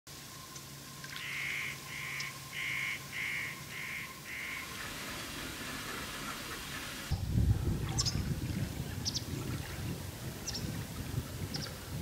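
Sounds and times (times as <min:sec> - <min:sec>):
bird calling: 0:00.5 - 0:04.8.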